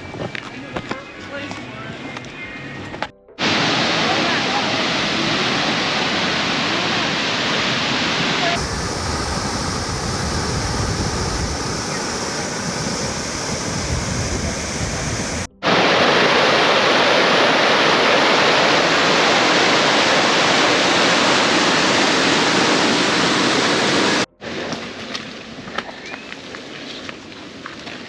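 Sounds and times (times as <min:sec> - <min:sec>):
waterfall rushing: 0:03.4 - 0:24.3.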